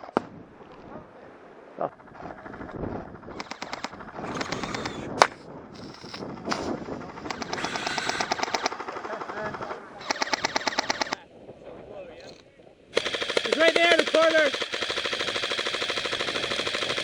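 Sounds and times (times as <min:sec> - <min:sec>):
airsoft guns firing full auto: 0:03.3 - 0:11.2, 0:12.2 - 0:17.0
sharp crack: 0:03.4 - 0:09.2.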